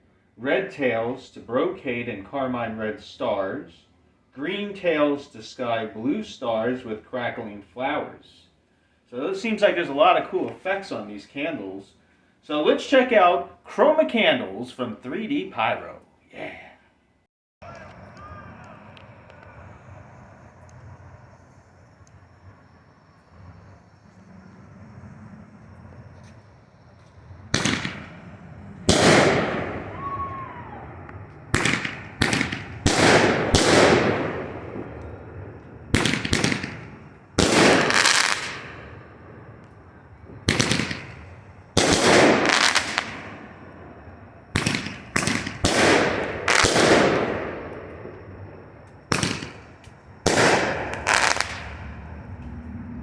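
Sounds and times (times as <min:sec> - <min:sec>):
roman candles popping and hissing: 0:31.0 - 0:35.2, 0:35.9 - 0:38.9, 0:41.8 - 0:43.4.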